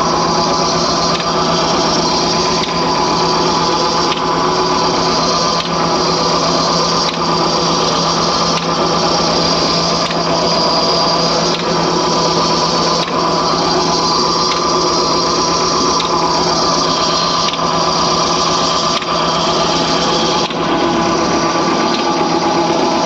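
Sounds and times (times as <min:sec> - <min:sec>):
tractor engine running under load: 0:00.0 - 0:23.0.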